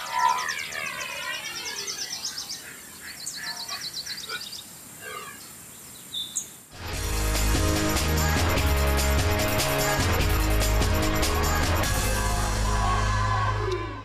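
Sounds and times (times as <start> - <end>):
birds chirping and trilling: 0.0 - 6.7.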